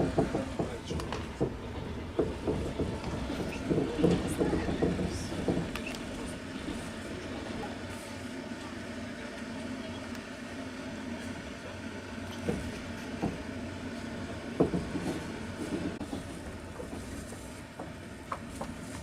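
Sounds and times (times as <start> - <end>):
wheels clacking and knocking: 0.0 - 7.6, 14.6 - 18.8
train carriage rumbling on rails: 0.0 - 19.0.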